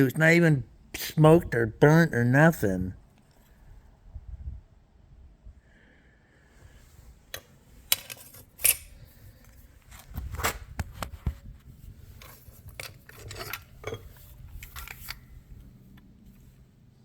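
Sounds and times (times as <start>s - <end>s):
metal parts clinking and clanking: 7.3s - 10.6s, 12.1s - 15.7s.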